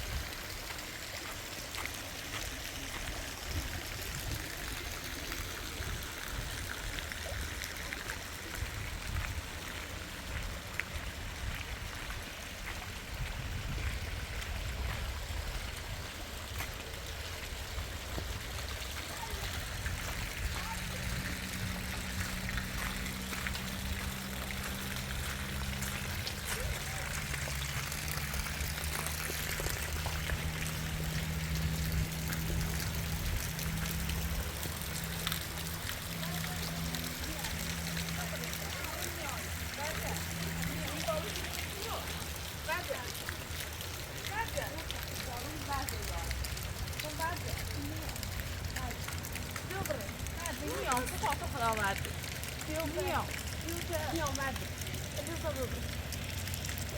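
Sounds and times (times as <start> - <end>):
heavy rain falling: 18.9 - 56.9.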